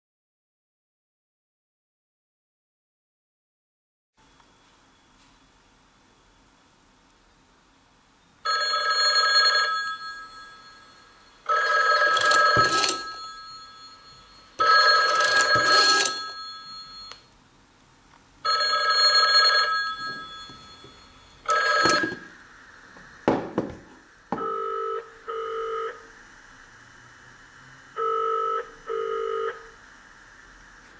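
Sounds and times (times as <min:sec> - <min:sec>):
dial tone beeps: 0:08.5 - 0:17.2, 0:18.5 - 0:22.3, 0:24.4 - 0:26.0, 0:28.0 - 0:29.7
rotary telephone ringing: 0:08.5 - 0:17.2, 0:18.4 - 0:22.3.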